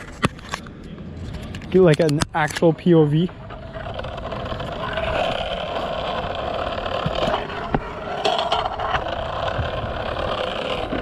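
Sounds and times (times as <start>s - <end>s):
skateboard wheels rolling on concrete: 0.0s - 11.0s
skateboard clacks: 3.2s - 11.0s.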